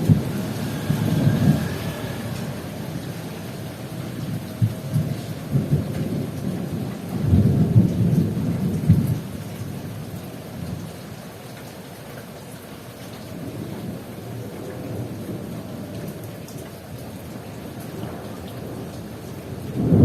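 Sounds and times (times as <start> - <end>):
thunder rumbling: 0.0 - 10.8, 17.6 - 20.0
heavy rain falling: 0.0 - 20.0.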